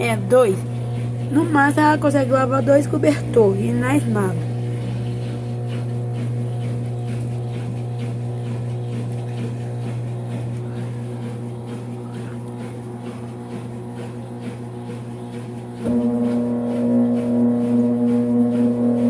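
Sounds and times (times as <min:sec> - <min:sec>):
washing machine humming: 0:00.0 - 0:19.0.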